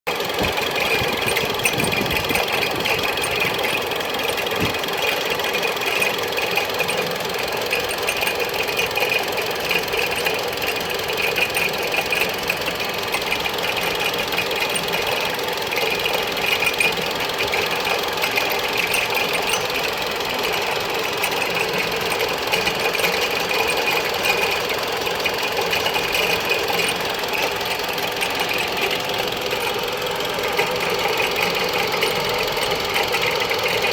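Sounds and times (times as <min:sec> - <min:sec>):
car engine idling: 0:00.1 - 0:33.9
high belt squeak: 0:18.3 - 0:19.9.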